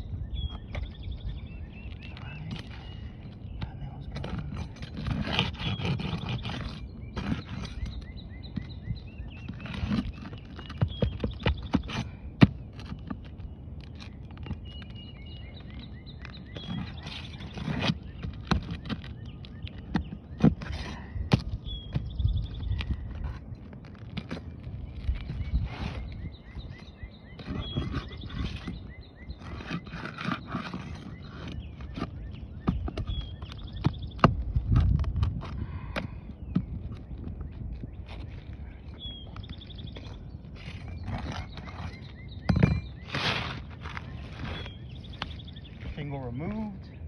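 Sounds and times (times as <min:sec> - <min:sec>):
shingle scraping and rustling: 0:00.0 - 0:47.0
short scrape: 0:43.0 - 0:44.8.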